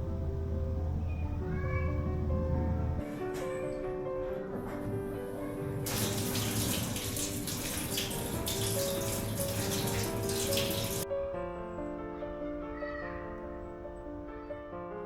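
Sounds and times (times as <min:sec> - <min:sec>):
soft background music: 0:00.0 - 0:15.0
water running from a tap: 0:05.8 - 0:11.0.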